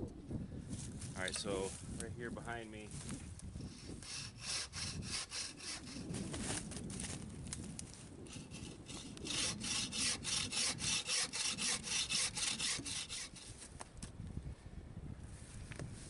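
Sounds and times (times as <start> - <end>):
hand saw cutting wood: 3.7 - 6.2, 8.3 - 13.7.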